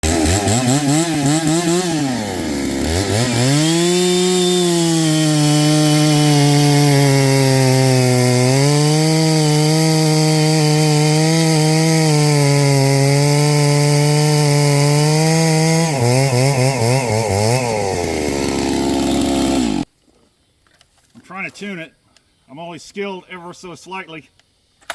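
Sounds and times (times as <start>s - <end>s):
chainsaw engine revving: 0.0s - 19.9s.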